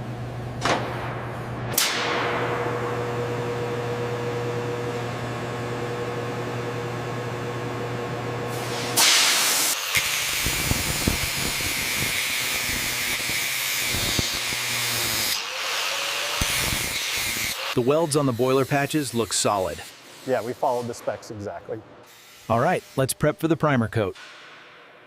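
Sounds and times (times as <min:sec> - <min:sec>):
machine hum: 0:00.0 - 0:09.0
loud hiss with crackles: 0:08.5 - 0:14.5.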